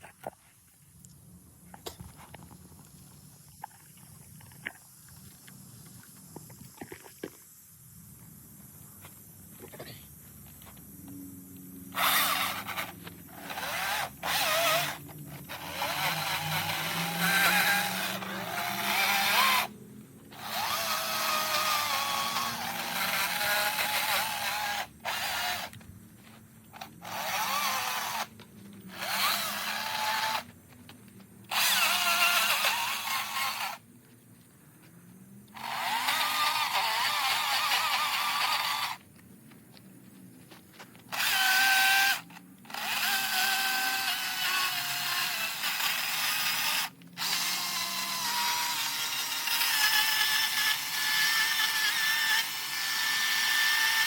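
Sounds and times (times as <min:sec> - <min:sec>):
chainsaw cutting wood: 0:11.9 - 0:25.8, 0:26.7 - 0:30.5, 0:31.5 - 0:33.8, 0:35.5 - 0:39.0, 0:41.1 - 0:54.0.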